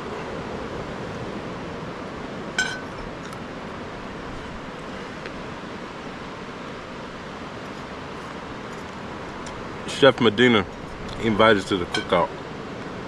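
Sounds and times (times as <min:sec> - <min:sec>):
beach surf: 0:00.0 - 0:13.0
ringing clink on dishware: 0:02.6 - 0:03.0, 0:11.8 - 0:12.2.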